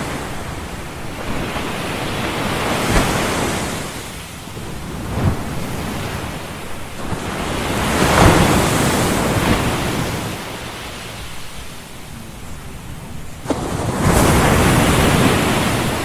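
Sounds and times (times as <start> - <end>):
ocean surf hissing: 0.0 - 16.0.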